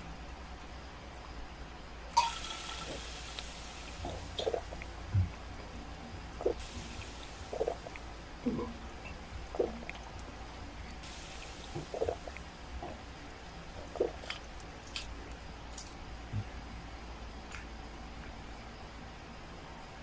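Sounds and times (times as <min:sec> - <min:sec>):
low steady hum: 0:00.0 - 0:20.0
wet chewing sounds: 0:09.0 - 0:11.0, 0:13.8 - 0:16.0.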